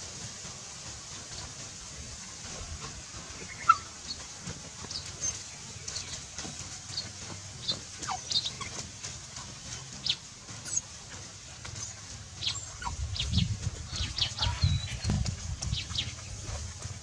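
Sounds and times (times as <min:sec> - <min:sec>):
low rumbling thumps: 0:12.2 - 0:17.0.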